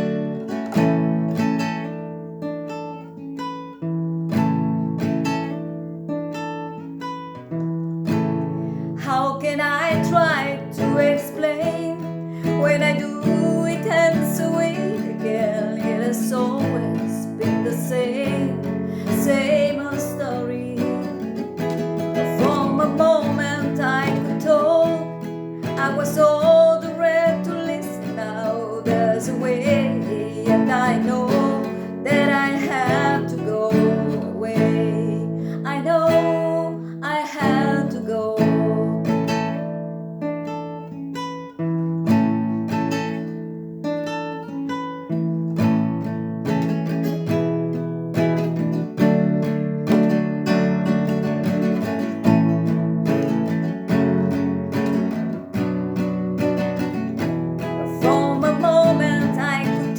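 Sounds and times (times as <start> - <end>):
acoustic guitar strumming: 0.0 - 59.9
person singing: 9.0 - 21.3, 22.2 - 39.2, 57.8 - 59.9.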